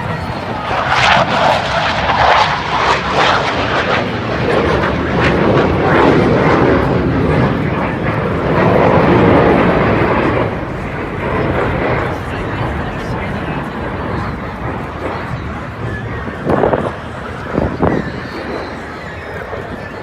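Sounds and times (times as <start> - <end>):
jet aircraft flying past: 0.0 - 20.0.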